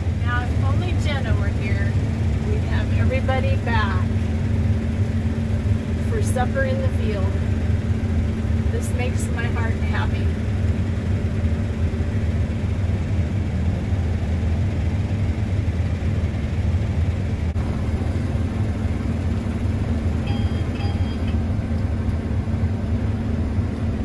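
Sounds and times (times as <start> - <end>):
combine engine droning: 0.0 - 24.0
short electronic beeps: 20.3 - 21.4.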